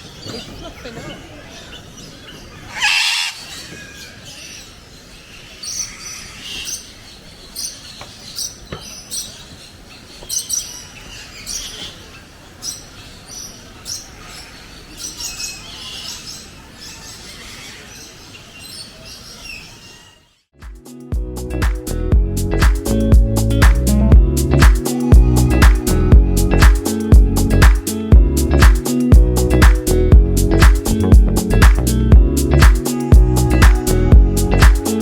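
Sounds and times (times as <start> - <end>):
birds chirping and calling: 0.0 - 20.4.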